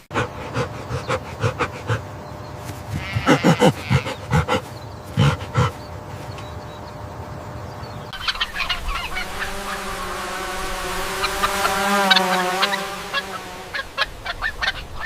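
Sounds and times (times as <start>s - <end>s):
short animal calls: 0.0s - 6.0s
geese honking: 0.0s - 15.0s.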